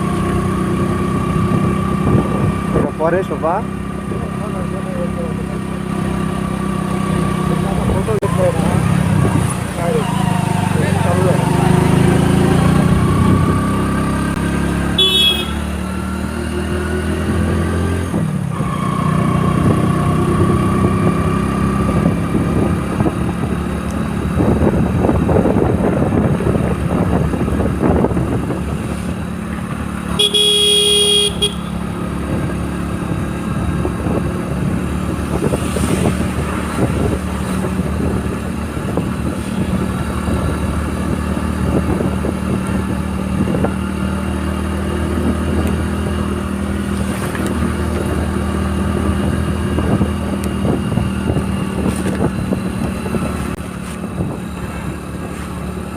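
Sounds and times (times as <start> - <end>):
motorcycle engine running: 0.0 - 55.9
vehicle horn honking: 14.9 - 15.8, 30.1 - 31.9.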